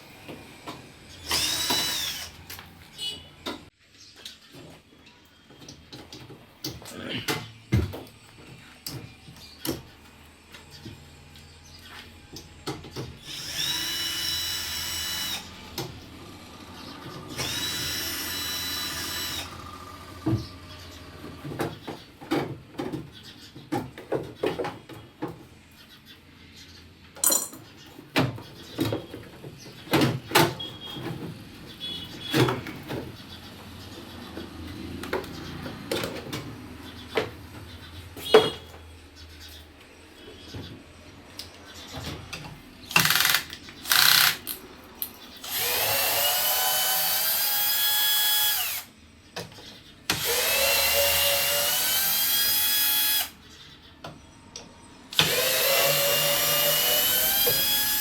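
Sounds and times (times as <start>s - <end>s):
power drill driving screws: 1.2s - 3.1s, 13.2s - 15.8s, 17.3s - 19.8s, 42.9s - 44.6s, 45.4s - 48.9s, 50.1s - 53.4s, 55.1s - 58.0s.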